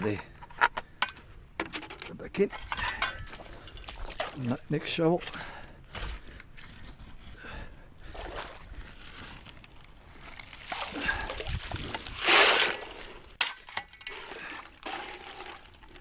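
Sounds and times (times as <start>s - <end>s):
water sloshing: 2.8s - 4.5s, 8.0s - 9.5s
shovel digging wet gravel: 10.4s - 16.0s.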